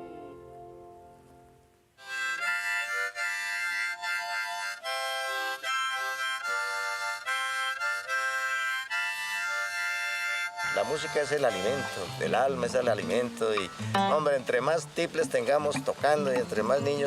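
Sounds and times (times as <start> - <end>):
wind instrument melody: 0.0 - 17.0
song: 2.0 - 17.0.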